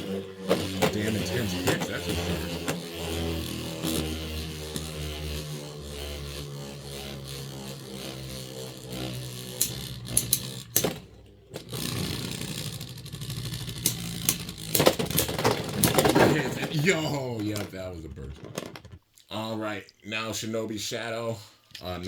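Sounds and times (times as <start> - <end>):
spinning tops whirring: 0.0 - 17.9
spinning tops clacking: 0.4 - 17.7.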